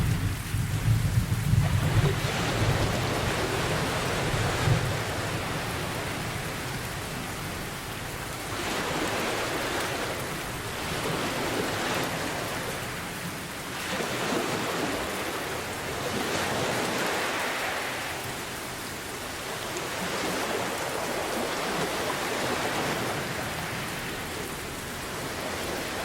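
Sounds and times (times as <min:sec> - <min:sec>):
heavy rain hissing: 0:00.0 - 0:13.7.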